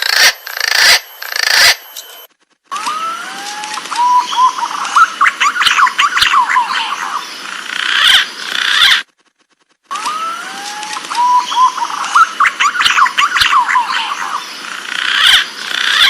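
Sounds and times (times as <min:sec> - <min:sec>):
pigeon whistled calls: 0:03.9 - 0:07.1, 0:11.1 - 0:14.2.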